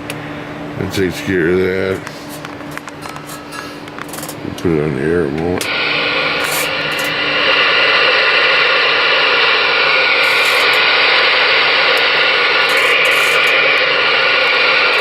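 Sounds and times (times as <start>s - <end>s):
radio static hiss: 4.2s - 15.0s.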